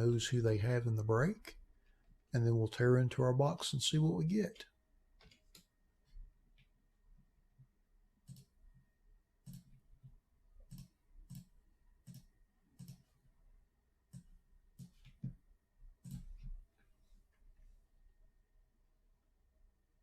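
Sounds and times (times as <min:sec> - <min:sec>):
computer mouse clicks: 0:08.2 - 0:08.6, 0:09.4 - 0:09.8, 0:10.6 - 0:13.1, 0:14.1 - 0:15.3, 0:16.0 - 0:16.5.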